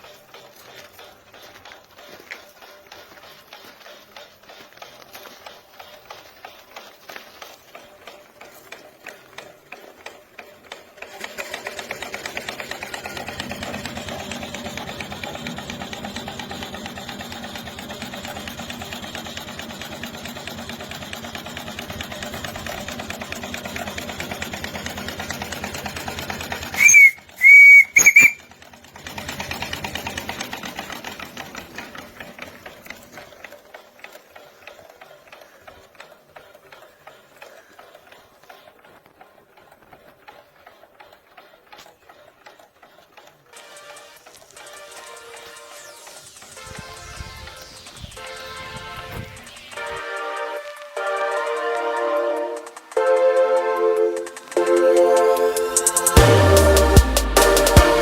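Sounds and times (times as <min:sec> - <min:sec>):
steam engine chuffing: 0:00.0 - 0:58.0
steam whistle blasts: 0:26.8 - 0:28.4.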